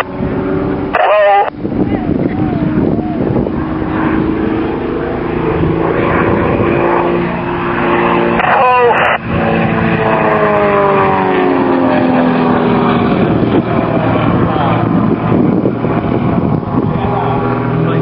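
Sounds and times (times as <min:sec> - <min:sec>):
model aircraft engines: 0:00.0 - 0:18.0.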